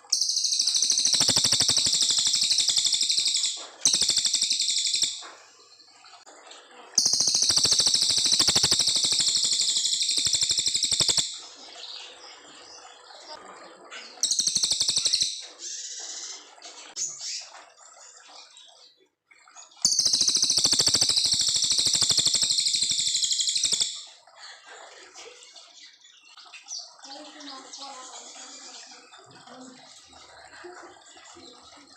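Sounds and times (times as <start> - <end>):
songbird trilling: 0.0 - 5.3, 7.0 - 11.4, 14.2 - 16.2, 19.8 - 24.1
soft bird chirps: 0.0 - 31.9.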